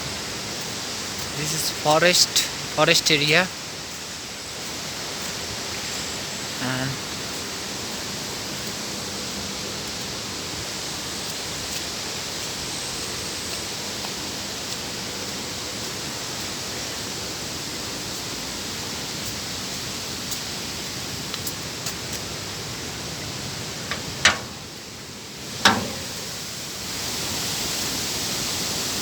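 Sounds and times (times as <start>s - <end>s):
water rushing: 21.0s - 27.4s.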